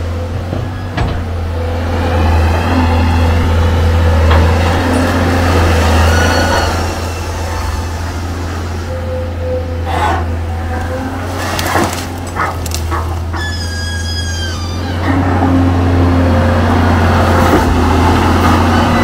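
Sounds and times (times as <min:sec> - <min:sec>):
diesel engine droning: 0:00.0 - 0:19.0
wavering squeals: 0:04.5 - 0:15.5.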